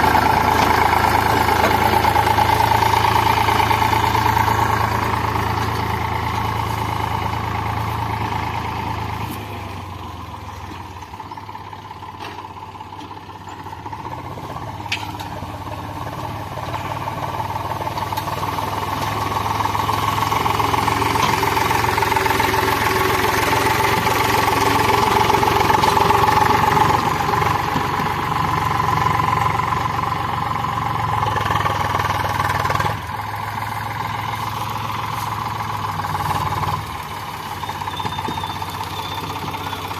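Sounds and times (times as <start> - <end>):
tractor diesel engine running hard: 0.0 - 39.9.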